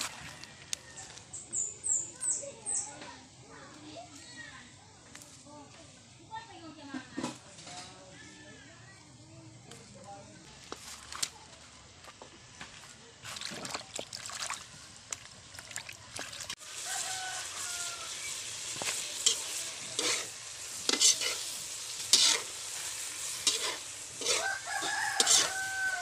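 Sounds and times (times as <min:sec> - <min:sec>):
chicken livers sizzling in a wok: 0:14.6 - 0:26.0
metal spatula scraping a pan: 0:18.8 - 0:26.0.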